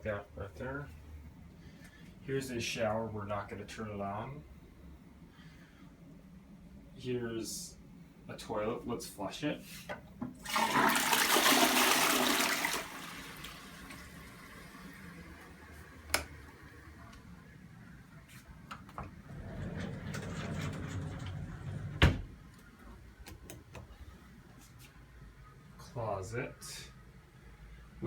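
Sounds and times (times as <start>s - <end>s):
water running as cistern refills: 10.3s - 16.8s
toilet flushing: 10.4s - 17.1s
click: 16.1s - 16.3s.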